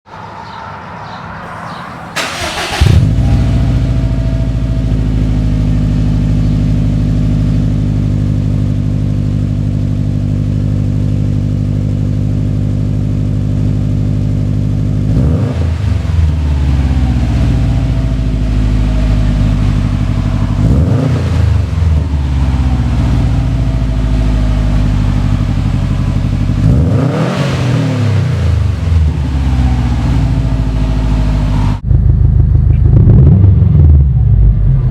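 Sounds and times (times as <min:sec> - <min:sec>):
car engine idling and revving: 0:01.4 - 0:34.9.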